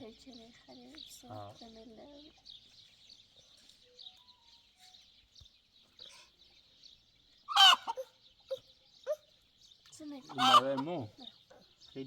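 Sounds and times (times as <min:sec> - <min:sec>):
small birds chirping: 0:00.0 - 0:12.0
chicken squawk: 0:07.5 - 0:09.2, 0:10.3 - 0:10.9.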